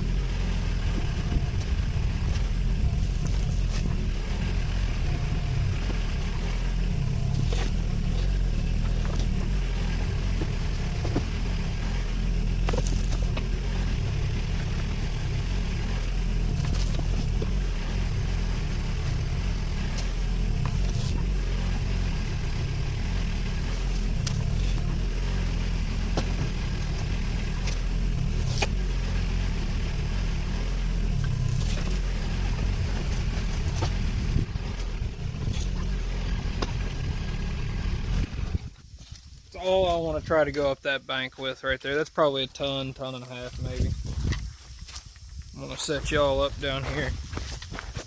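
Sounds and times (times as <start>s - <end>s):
engine running with low rumble: 0.0s - 48.0s
sharp clicks and knocks: 23.9s - 24.9s, 26.0s - 28.8s.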